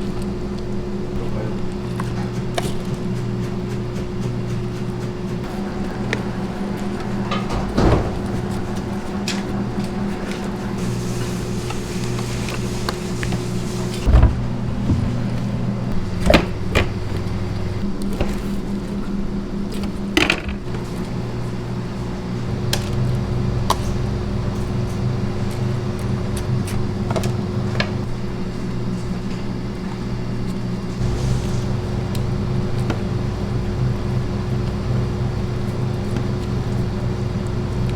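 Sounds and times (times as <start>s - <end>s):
machine humming: 0.0s - 37.9s.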